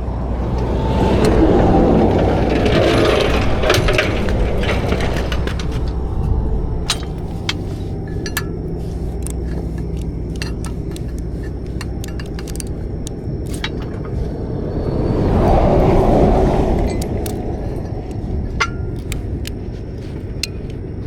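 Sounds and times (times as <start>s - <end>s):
engine idling: 0.0s - 14.5s
sharp metallic clicks and clinks: 3.6s - 14.2s, 16.8s - 21.0s.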